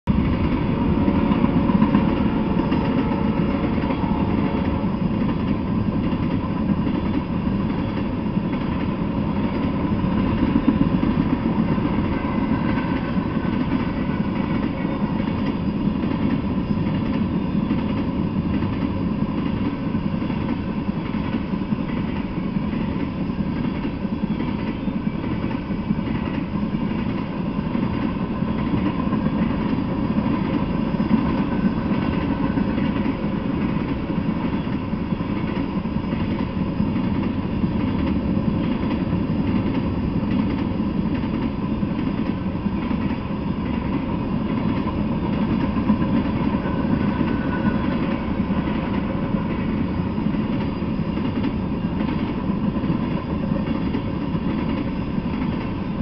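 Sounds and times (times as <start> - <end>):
freight train wheels on rails: 0.0 - 56.0.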